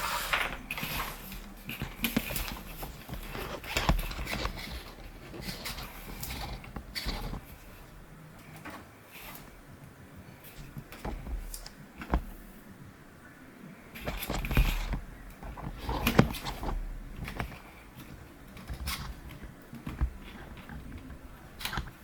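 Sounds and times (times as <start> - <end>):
hard plastic parts clicking: 0.0 - 9.5, 14.0 - 22.0
plastic rustling: 0.0 - 22.0.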